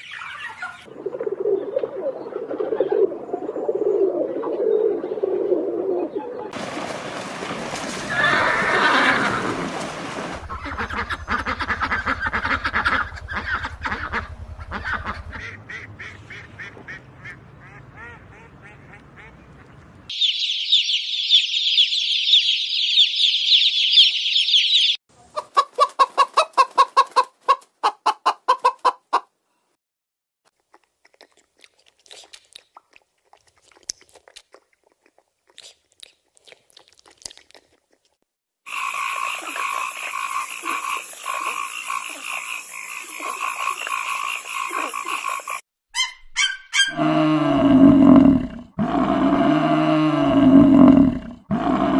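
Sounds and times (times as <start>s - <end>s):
horse whinnying: 8.1s - 9.7s
chicks peeping: 20.1s - 27.4s.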